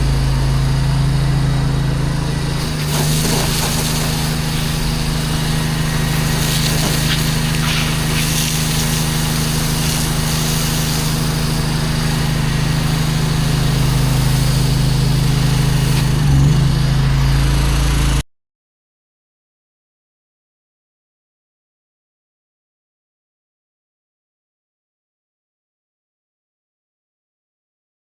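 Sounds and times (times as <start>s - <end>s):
pressure washer engine running: 0.0s - 18.2s.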